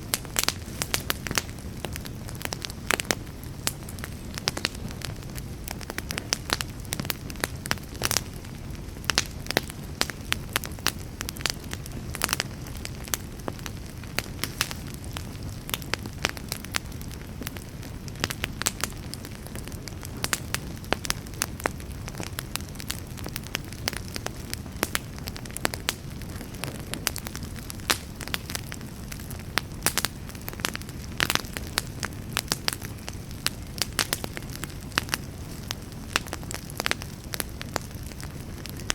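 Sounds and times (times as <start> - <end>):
fire crackling and popping: 0.0 - 38.9
low rush of flames: 0.0 - 38.9.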